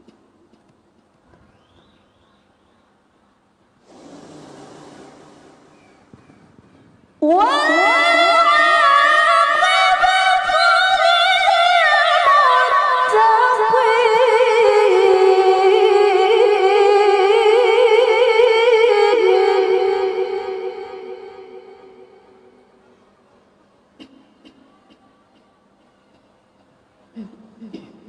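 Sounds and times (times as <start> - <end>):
woman reciting melodically: 7.2 - 22.4.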